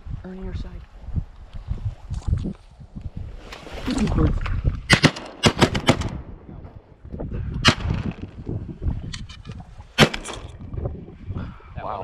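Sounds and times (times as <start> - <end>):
shotgun shots: 4.9 - 6.3, 7.6 - 8.2, 10.0 - 10.6.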